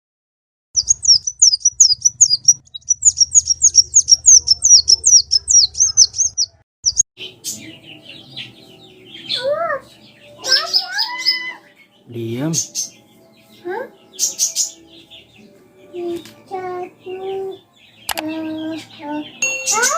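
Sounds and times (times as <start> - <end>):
bird scratchy twittering: 0.8 - 7.8
songbird high chirping notes: 0.8 - 19.9.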